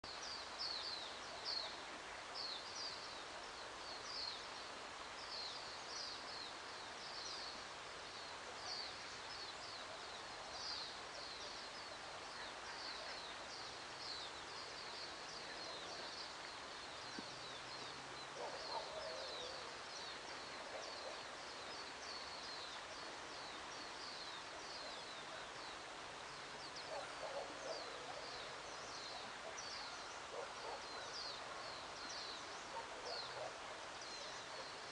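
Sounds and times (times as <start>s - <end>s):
faint background hiss: 0.0s - 34.9s
birds chirping: 8.2s - 34.9s.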